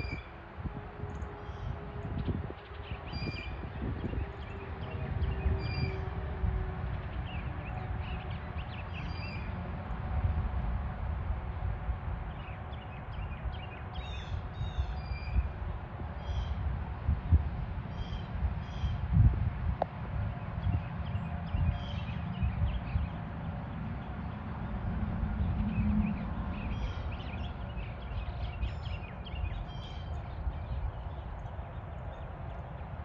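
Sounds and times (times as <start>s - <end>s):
steady low rumble: 0.0s - 33.0s
birds warbling and chirping: 25.4s - 32.8s.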